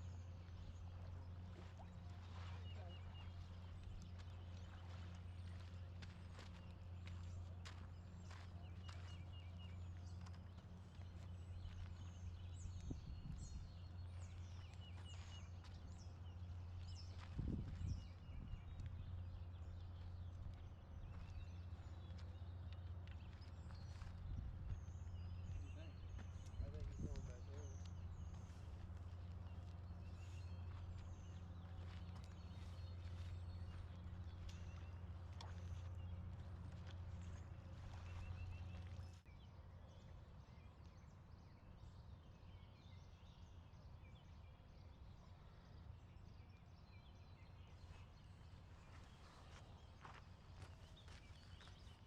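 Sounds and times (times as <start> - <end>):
steady low hum: 0.0 - 52.0
birds whistling and chirping: 23.6 - 36.2.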